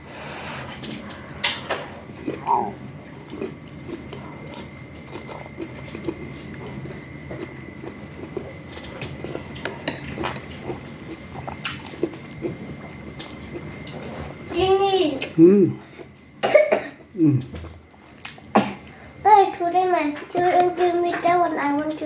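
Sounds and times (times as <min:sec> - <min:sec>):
chewing and mouth smacks: 0:00.8 - 0:14.5, 0:17.4 - 0:18.5.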